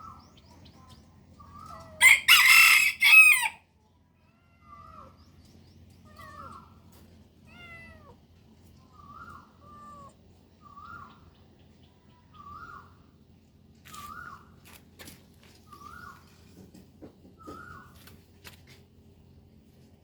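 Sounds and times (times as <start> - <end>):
rooster crowing: 2.0 - 3.6
kittens mewing: 6.0 - 8.3, 9.2 - 10.3.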